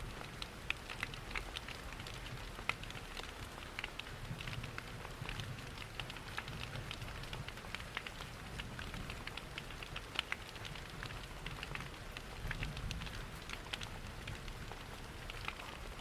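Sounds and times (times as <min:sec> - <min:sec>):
rain pattering: 0:00.0 - 0:16.0
wood fire crackling: 0:00.1 - 0:16.0
waterfall rumble: 0:09.3 - 0:16.0.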